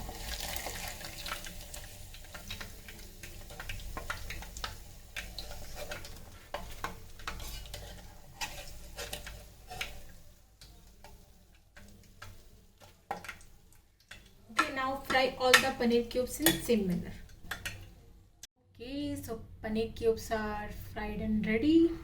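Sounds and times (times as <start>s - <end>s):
food sizzling in hot oil: 0.0s - 18.0s
utensil tapping pot: 11.8s - 18.0s.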